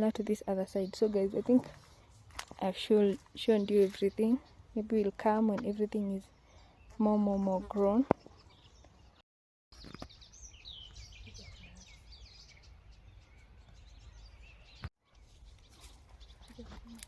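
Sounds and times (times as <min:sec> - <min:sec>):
high bird chirps: 0:09.8 - 0:16.6.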